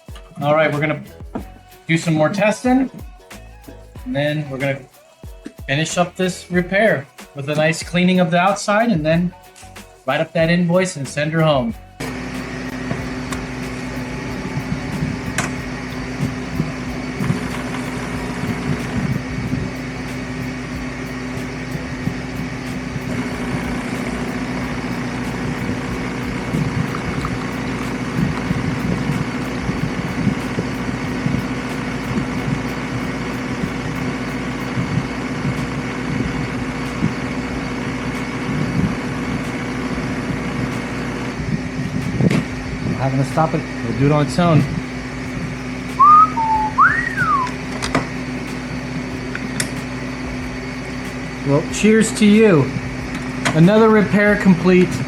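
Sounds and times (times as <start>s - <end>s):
espresso machine humming and buzzing: 12.0s - 55.0s.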